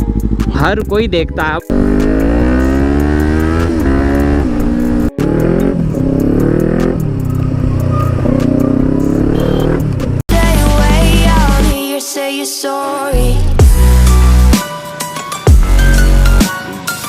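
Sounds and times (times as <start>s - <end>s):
motorcycle engine accelerating: 1.7s - 10.2s.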